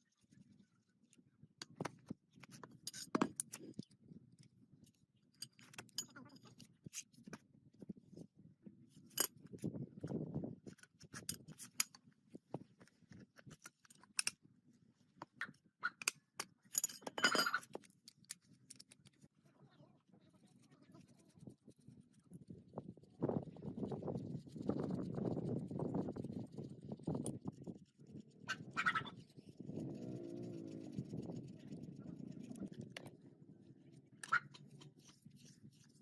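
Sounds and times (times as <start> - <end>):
small metallic clicks: 13.4 - 14.4, 15.4 - 19.2.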